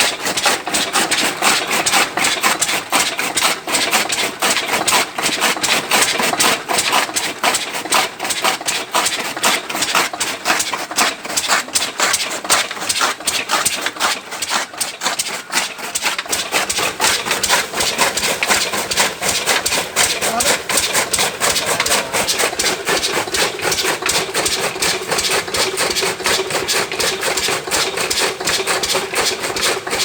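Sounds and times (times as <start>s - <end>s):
chaff cutter chopping: 0.0s - 30.0s
diesel engine knocking: 16.4s - 30.0s.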